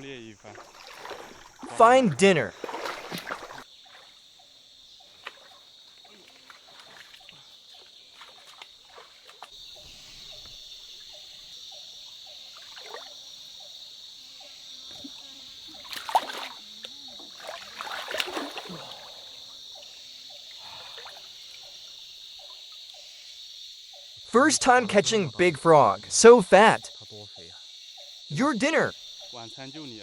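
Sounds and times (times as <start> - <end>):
night insects chirring: 0.0 - 30.0
splashing in shallow water: 0.4 - 4.3, 5.1 - 10.0, 12.5 - 13.3, 14.9 - 22.0.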